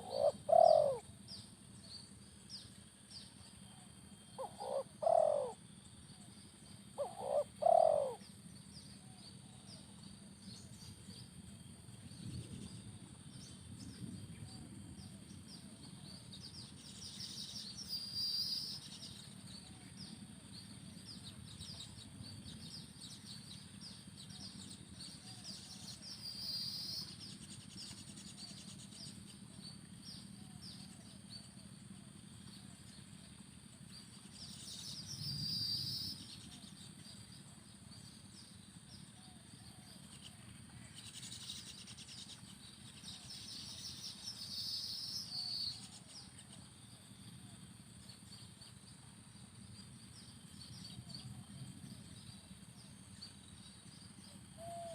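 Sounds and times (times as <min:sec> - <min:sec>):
dove cooing: 0:00.0 - 0:01.2, 0:03.7 - 0:05.6, 0:07.0 - 0:08.2, 0:54.6 - 0:54.9.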